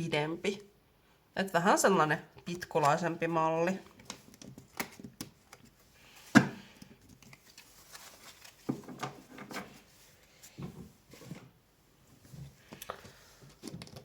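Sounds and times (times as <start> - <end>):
cards clicking and tapping: 4.0 - 5.7.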